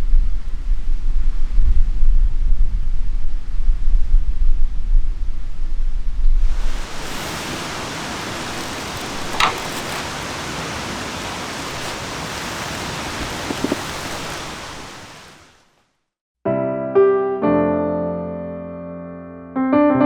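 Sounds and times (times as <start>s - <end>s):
outdoor rushing noise: 6.4s - 15.8s
solo piano music: 16.5s - 20.0s.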